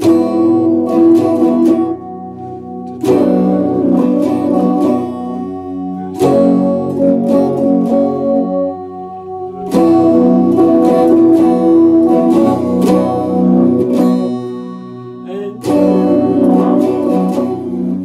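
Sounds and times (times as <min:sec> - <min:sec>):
electric guitar strummed: 0:00.0 - 0:18.0.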